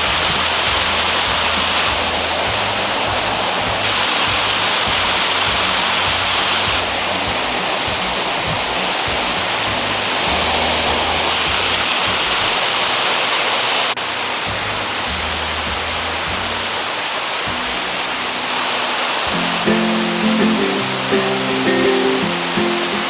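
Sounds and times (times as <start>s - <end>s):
waterfall rushing: 0.0s - 23.0s
quiet background music: 14.0s - 23.0s.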